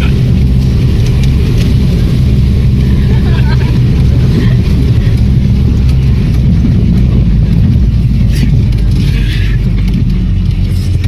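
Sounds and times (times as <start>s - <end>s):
off-road vehicle engine droning: 0.0s - 11.0s.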